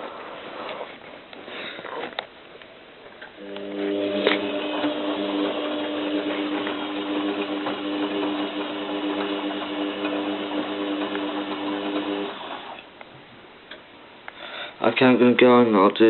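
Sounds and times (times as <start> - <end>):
washing machine motor humming: 3.4 - 13.0.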